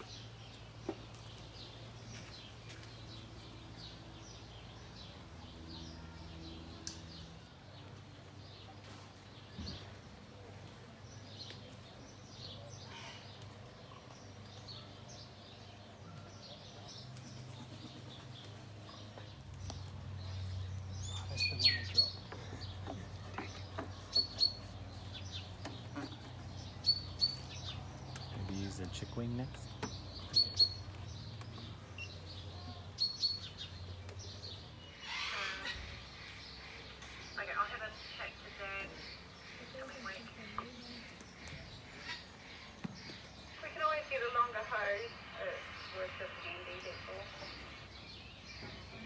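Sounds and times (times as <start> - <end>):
songbirds chirping: 0.0 - 49.0.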